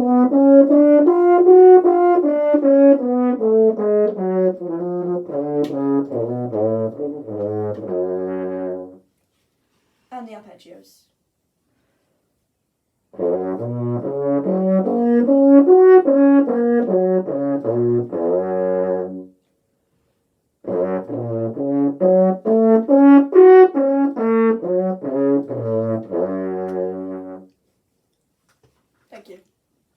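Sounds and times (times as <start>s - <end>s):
french horn playing arpeggios: 0.0s - 9.0s, 13.2s - 19.3s, 20.6s - 27.6s.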